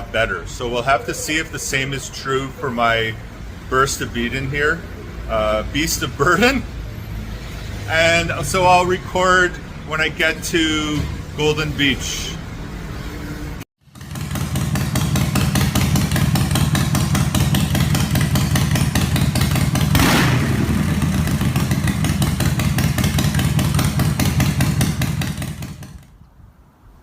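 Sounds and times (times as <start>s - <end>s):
motorcycle engine running: 13.8s - 26.2s.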